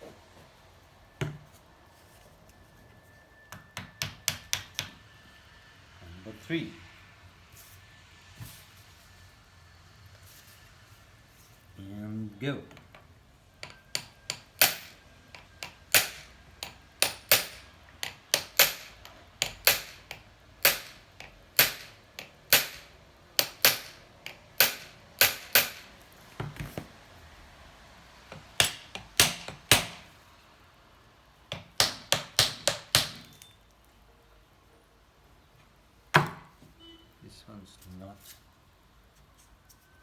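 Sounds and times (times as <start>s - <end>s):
hammer striking metal wedges: 13.6s - 26.0s, 28.3s - 30.1s, 31.5s - 33.6s.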